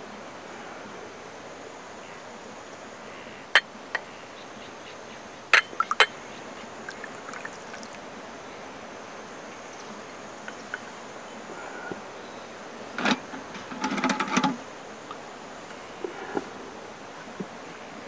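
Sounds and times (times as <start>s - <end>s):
tea pouring into glass: 6.9s - 8.0s.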